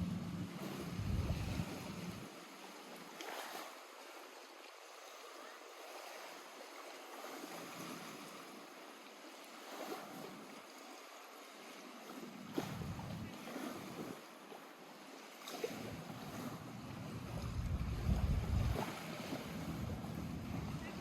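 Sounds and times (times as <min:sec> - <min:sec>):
wind buffeting microphone: 0:00.0 - 0:02.3, 0:12.6 - 0:13.4, 0:16.2 - 0:21.0
lake waves lapping on shore: 0:00.0 - 0:21.0.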